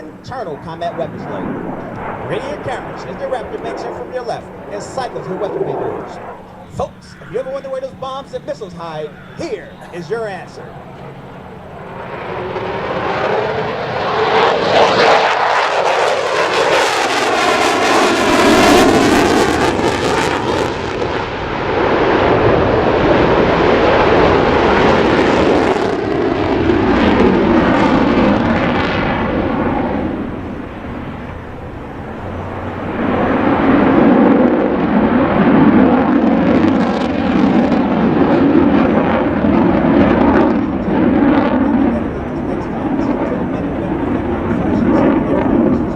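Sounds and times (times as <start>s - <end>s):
jet flying past: 0.0s - 45.9s.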